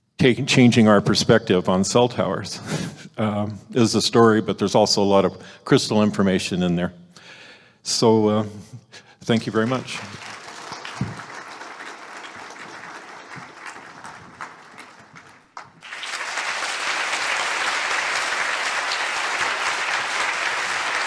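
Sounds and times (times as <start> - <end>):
audience applauding: 9.4 - 21.0.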